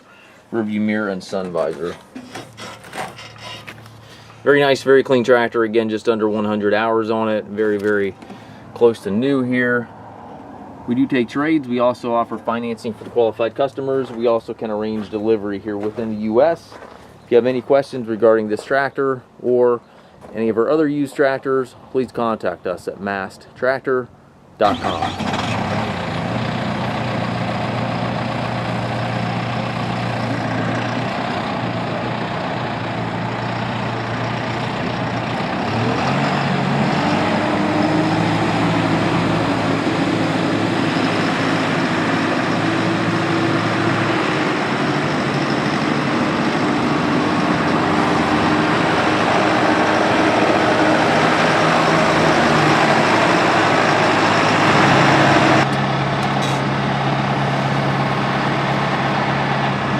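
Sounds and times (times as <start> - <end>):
tractor diesel engine running: 24.6 - 59.9.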